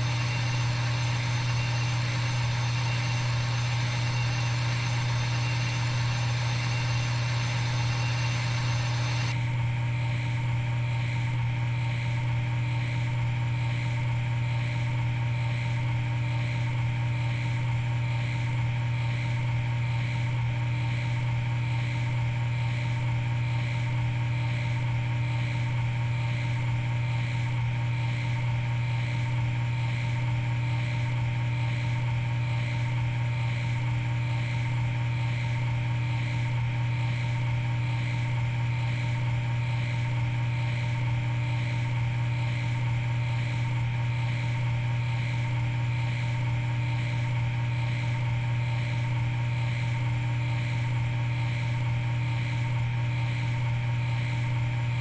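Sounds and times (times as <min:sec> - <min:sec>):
shop machinery humming: 0:00.0 - 0:09.4.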